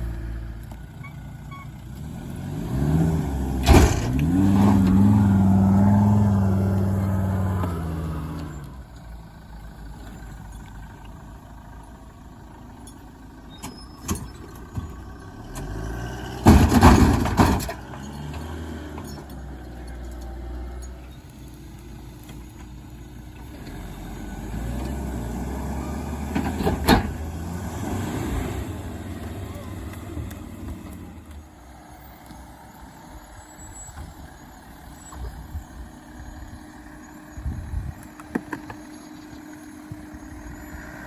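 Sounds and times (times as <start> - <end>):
vehicle engine running: 0.0 - 41.0.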